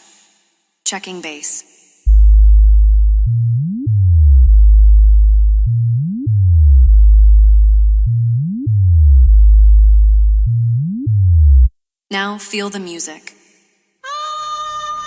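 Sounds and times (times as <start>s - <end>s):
deep electronic bass tone: 2.1s - 11.7s
falling bass notes: 2.1s - 11.7s.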